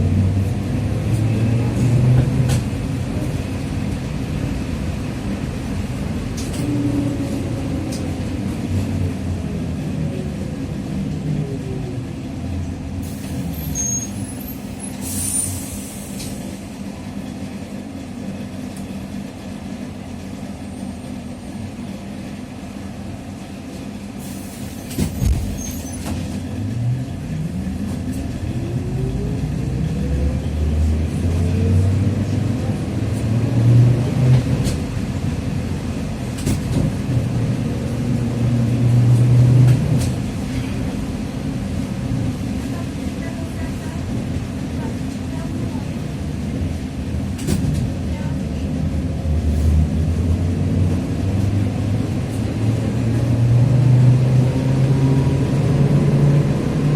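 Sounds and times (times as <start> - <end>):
trolleybus gear whine: 0.0 - 56.9
short air hisses: 14.9 - 16.4.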